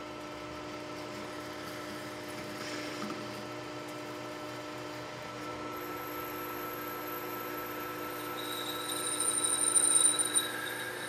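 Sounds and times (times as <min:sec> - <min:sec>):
metal lathe cutting steel: 0:05.7 - 0:11.0.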